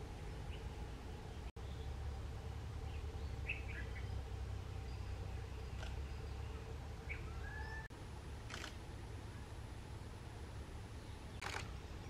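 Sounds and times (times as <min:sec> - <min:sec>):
steady low rumble: 0:00.0 - 0:12.0
sharp clicks: 0:05.8 - 0:06.0, 0:08.5 - 0:08.8, 0:11.4 - 0:11.7
faint bird whistle: 0:07.1 - 0:07.9.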